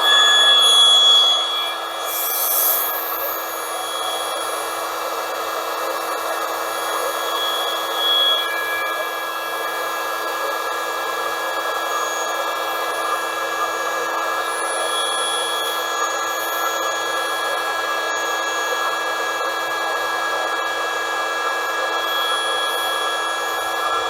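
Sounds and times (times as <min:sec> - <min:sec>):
electric air pump running: 0:00.0 - 0:08.8.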